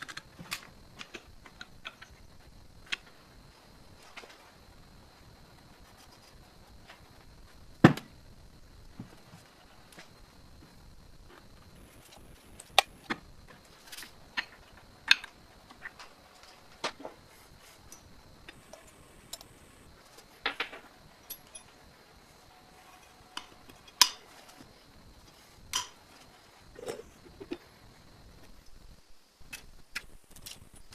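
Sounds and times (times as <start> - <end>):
metal tools clinking: 20.7 - 21.8.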